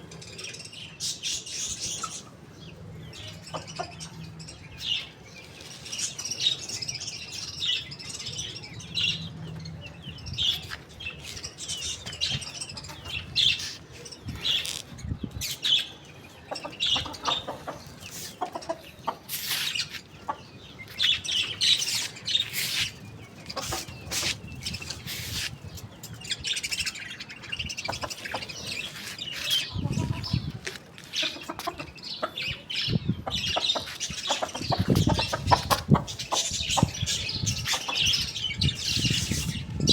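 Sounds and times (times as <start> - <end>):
small birds chirping: 0.0 - 39.9
chickens clucking: 1.8 - 4.4, 10.5 - 15.1, 15.7 - 26.8, 27.6 - 39.9.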